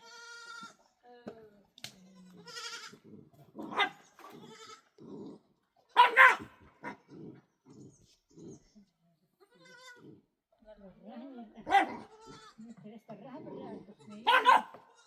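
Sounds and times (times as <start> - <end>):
sheep bleating: 0.0 - 0.8, 2.1 - 3.1, 4.3 - 5.0, 12.0 - 12.6
dog barking loudly: 3.6 - 4.0, 6.0 - 7.0, 11.7 - 12.1, 14.3 - 14.8.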